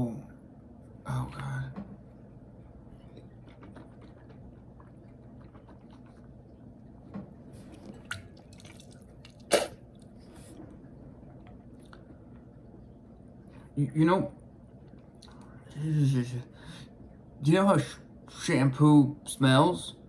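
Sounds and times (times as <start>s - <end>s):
wet mouth smacks: 8.1s - 9.8s.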